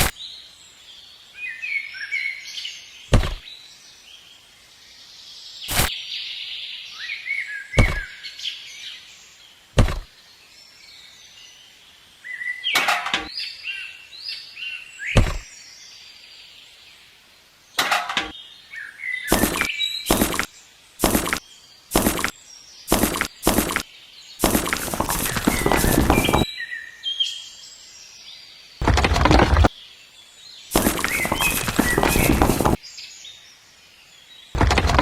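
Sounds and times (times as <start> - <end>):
small birds chirping: 0.0 - 35.0
sharp knocks: 3.1 - 3.4, 7.8 - 8.0, 9.8 - 10.1, 15.2 - 15.4, 19.3 - 22.3, 22.9 - 23.8, 24.4 - 26.4, 28.8 - 29.7, 30.7 - 32.8, 34.6 - 35.0.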